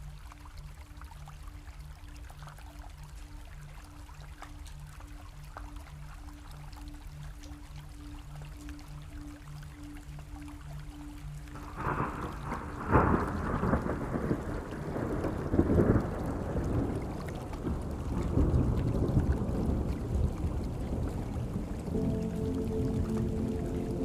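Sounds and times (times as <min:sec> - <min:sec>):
soft sustained music notes: 0:00.0 - 0:24.0
steady rain: 0:00.0 - 0:24.0
thunder cracking and rumbling: 0:11.6 - 0:22.3.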